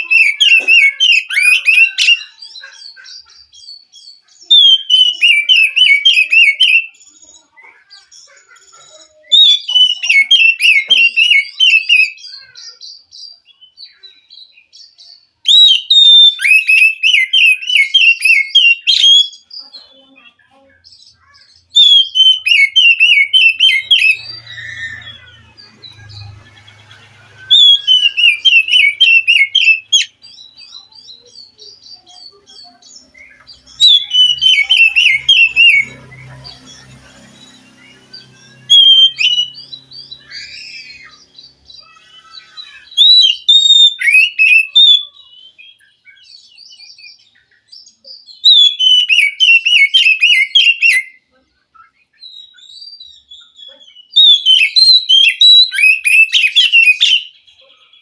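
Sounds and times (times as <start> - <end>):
short whistled bird phrases: 0.0 - 2.4, 4.4 - 7.5, 9.2 - 12.9, 15.5 - 19.4, 21.3 - 36.8, 37.6 - 47.1, 48.4 - 51.2, 52.2 - 57.6
bird singing chattering notes: 0.0 - 51.2, 52.1 - 58.0.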